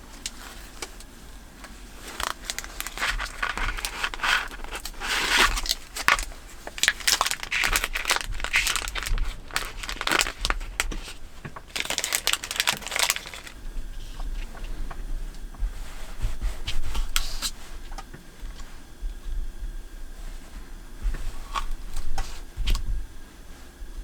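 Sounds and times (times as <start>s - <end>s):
crinkling and rustling: 0.0s - 18.8s
faint low rumble: 0.0s - 24.0s.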